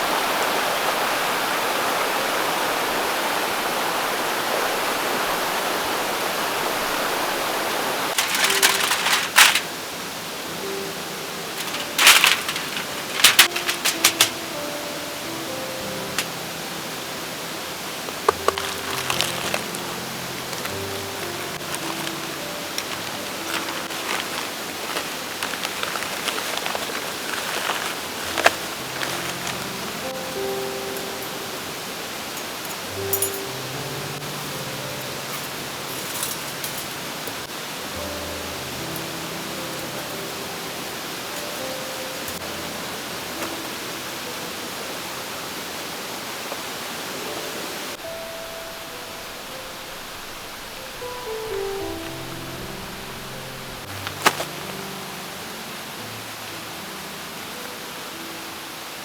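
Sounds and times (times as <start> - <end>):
mountain stream rushing: 0.0 - 59.0
sharp rustles and clicks: 8.1 - 9.8, 11.4 - 14.8, 16.0 - 16.4, 18.1 - 31.3, 50.0 - 54.9.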